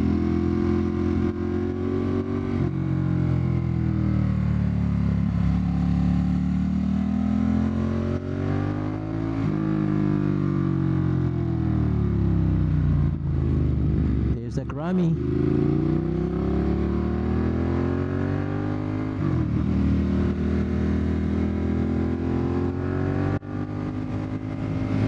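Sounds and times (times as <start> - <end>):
motorcycle engine running: 9.5 - 25.0.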